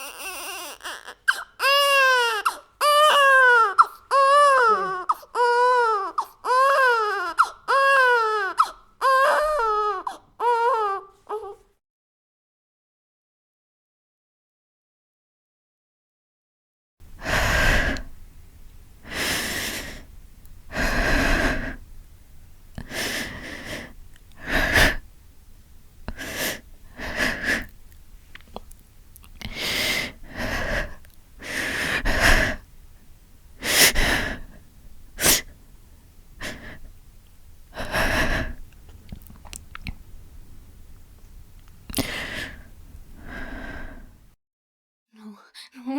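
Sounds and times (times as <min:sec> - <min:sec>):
woman sobbing: 0:01.6 - 0:11.5.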